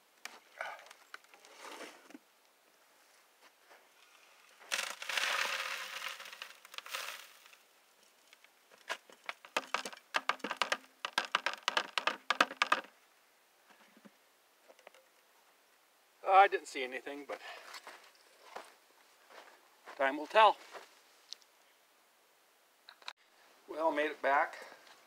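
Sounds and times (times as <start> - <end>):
gravel and sand pouring: 4.0 - 12.9
sharp clicks and rattles: 9.2 - 12.9.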